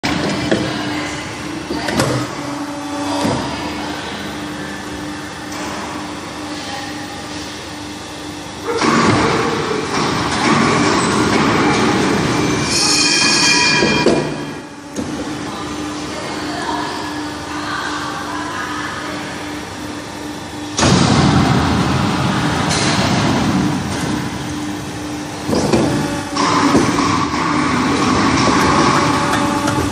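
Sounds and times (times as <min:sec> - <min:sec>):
machine humming: 0:00.0 - 0:29.9
rushing mechanical noise: 0:00.0 - 0:29.9
machine grinding and squealing: 0:08.6 - 0:17.4, 0:22.2 - 0:29.9.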